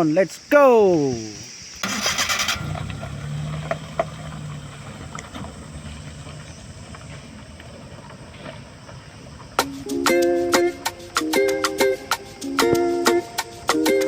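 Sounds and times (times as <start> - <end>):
vehicle engine running: 1.8 - 9.6.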